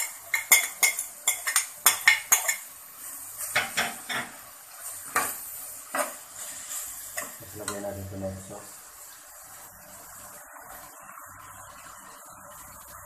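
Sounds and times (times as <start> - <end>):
utensil clinking and scraping a pan: 0.0 - 2.7.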